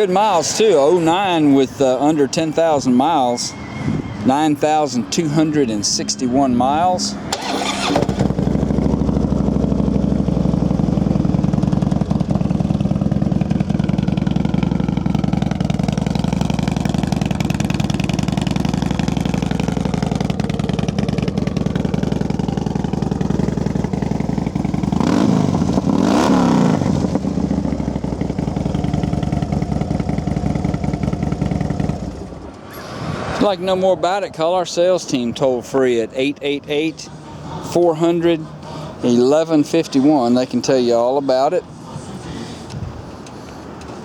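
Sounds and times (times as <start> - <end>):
motorcycle engine idling: 4.6 - 32.4.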